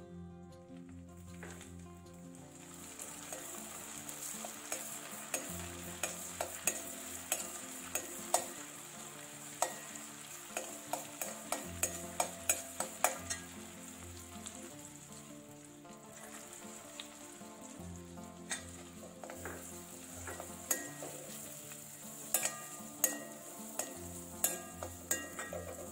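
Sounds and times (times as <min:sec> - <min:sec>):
food sizzling in a pan: 0:01.1 - 0:25.9
utensil scraping a pan: 0:18.4 - 0:25.9.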